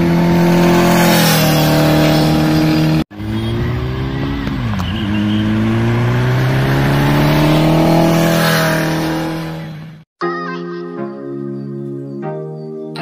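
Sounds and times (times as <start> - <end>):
motorcycle engine accelerating: 0.0 - 10.1.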